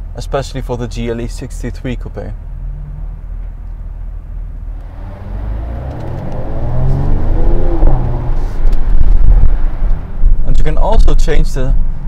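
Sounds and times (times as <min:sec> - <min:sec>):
car engine accelerating: 0:02.5 - 0:04.0, 0:04.6 - 0:10.4.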